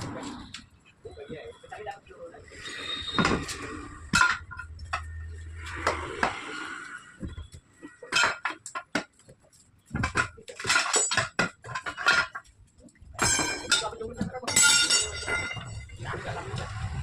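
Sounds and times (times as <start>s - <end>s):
tools clinking against wheel rim: 13.2s - 15.8s.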